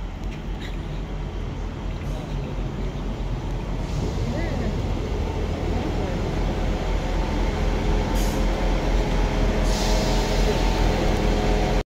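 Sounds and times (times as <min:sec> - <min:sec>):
diesel train engine rumbling: 0:00.0 - 0:11.8
air hiss: 0:09.6 - 0:10.6.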